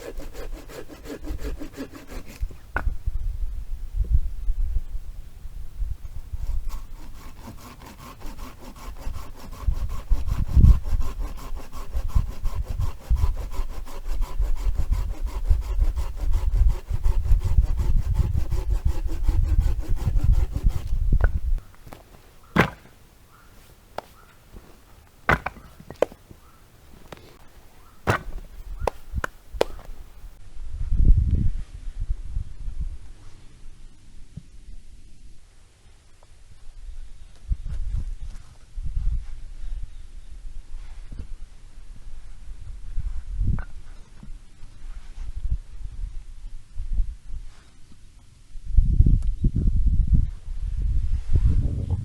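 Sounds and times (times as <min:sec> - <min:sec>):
hand saw cutting wood: 0:00.0 - 0:02.9, 0:06.1 - 0:30.4
wooden knocks and clacks: 0:25.3 - 0:26.3, 0:28.1 - 0:30.1.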